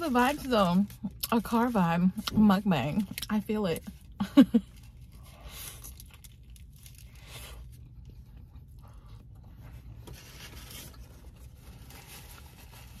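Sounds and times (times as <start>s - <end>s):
person chewing and crunching food: 4.0s - 10.0s.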